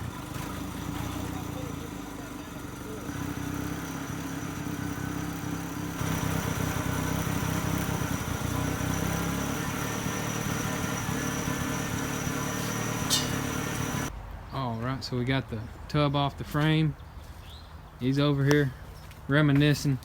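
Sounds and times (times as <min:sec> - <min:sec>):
engine running: 0:00.0 - 0:14.1.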